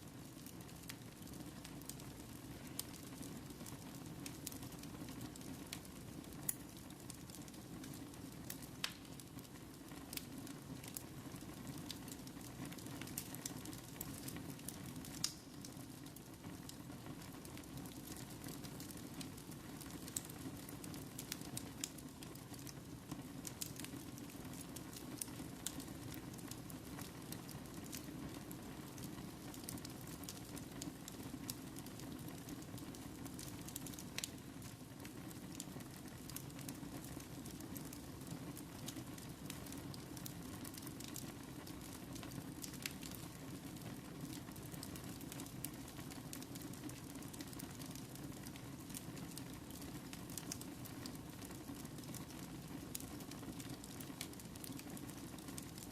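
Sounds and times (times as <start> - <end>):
wood fire crackling: 0.0 - 55.9
sharp pops of fire: 7.9 - 9.3, 12.7 - 16.6.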